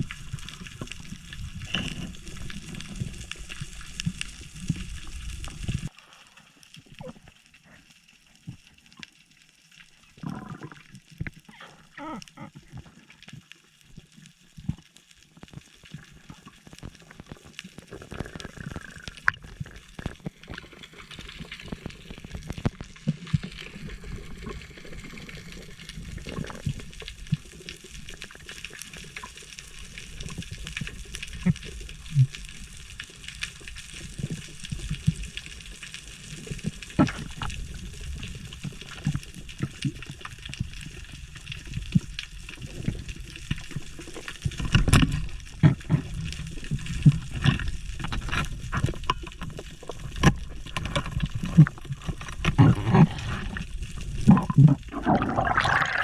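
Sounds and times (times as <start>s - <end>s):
water sloshing and gurgling: 0.0s - 9.3s, 9.9s - 33.0s, 33.8s - 56.0s
low underwater rumble: 49.9s - 56.0s.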